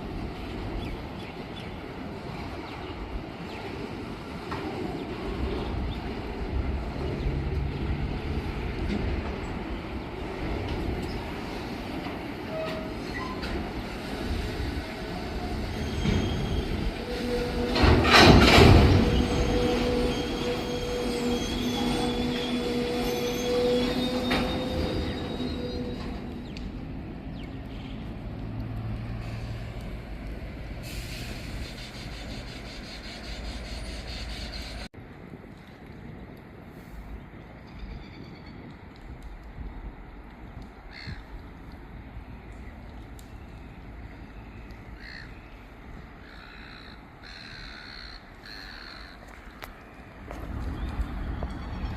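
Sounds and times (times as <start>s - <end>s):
freight train rumbling: 0.0s - 51.9s
train clanking: 4.2s - 27.1s
train wheel squeal: 12.4s - 26.7s, 30.9s - 34.9s.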